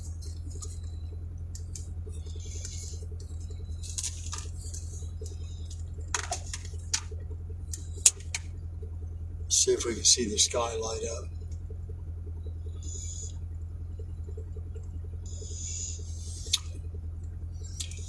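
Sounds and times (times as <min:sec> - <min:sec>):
light clicks and taps: 0:00.0 - 0:08.7
low hum inside vehicle: 0:00.0 - 0:18.0.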